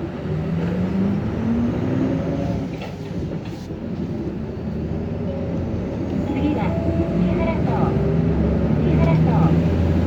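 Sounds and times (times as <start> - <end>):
bus diesel engine accelerating: 0.0 - 10.0.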